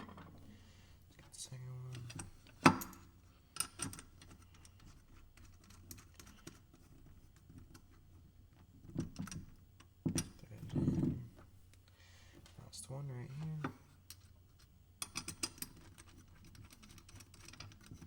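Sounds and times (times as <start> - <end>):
knocks and handling noise: 0.0 - 0.5, 1.9 - 11.6.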